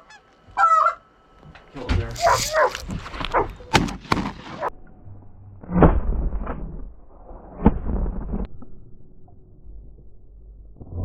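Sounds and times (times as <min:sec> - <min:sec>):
shotgun shots: 0:03.6 - 0:04.7.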